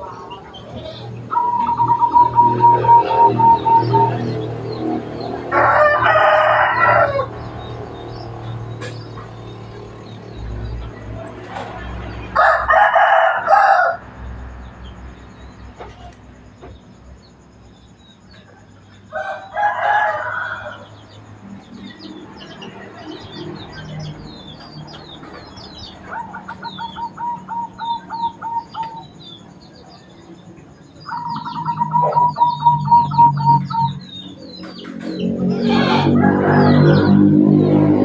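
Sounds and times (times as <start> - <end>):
small birds chirping: 0.0 - 12.4, 14.1 - 38.0
rooster crowing: 5.4 - 7.7, 12.3 - 14.1, 19.1 - 21.1, 35.5 - 37.9.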